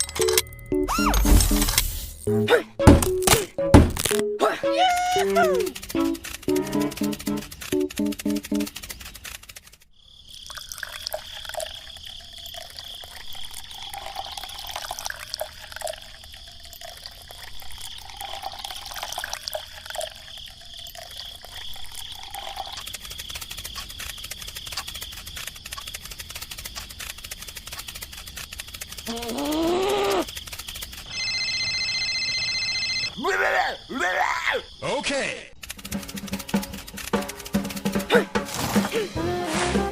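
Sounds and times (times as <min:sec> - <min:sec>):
water trickling and dripping: 0:10.3 - 0:22.9.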